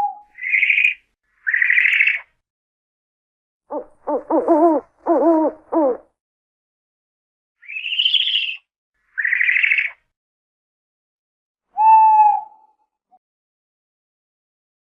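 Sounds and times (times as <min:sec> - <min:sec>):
owl screeching: 0:00.0 - 0:02.3, 0:03.7 - 0:06.0, 0:07.6 - 0:08.6, 0:09.2 - 0:10.0, 0:11.8 - 0:12.8
owl hoot: 0:03.7 - 0:06.1, 0:11.8 - 0:12.8.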